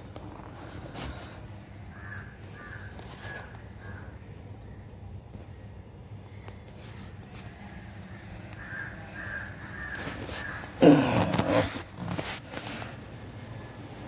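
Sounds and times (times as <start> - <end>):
low steady background hum: 0.0 - 14.0
bird harsh calls: 0.6 - 4.7, 8.2 - 12.2.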